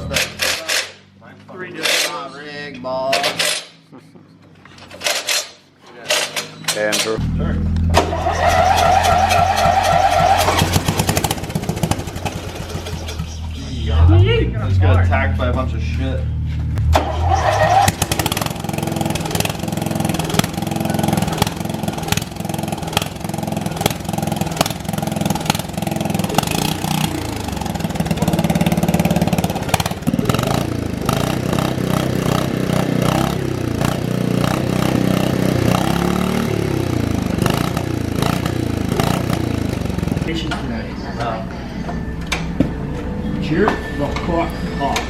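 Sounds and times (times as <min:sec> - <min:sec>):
lawnmower engine revving: 0:07.1 - 0:13.6, 0:16.8 - 0:40.6.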